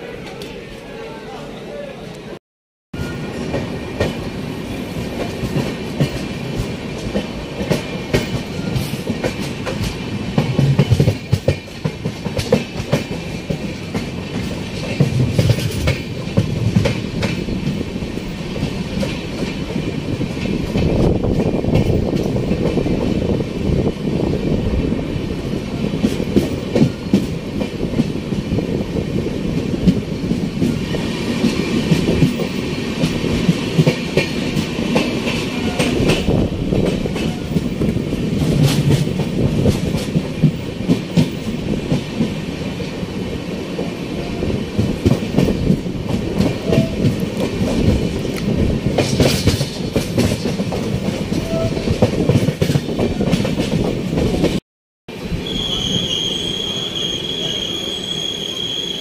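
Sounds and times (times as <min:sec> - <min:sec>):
train rumbling along track: 0:03.0 - 0:59.0
wheels clicking over rail joints: 0:44.8 - 0:54.6
high-pitched wheel squeal: 0:55.4 - 0:59.0.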